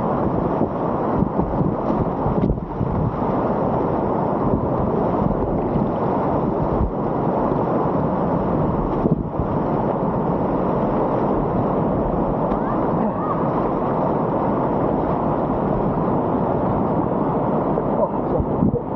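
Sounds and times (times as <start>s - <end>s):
river rapids rushing: 0.0s - 18.9s.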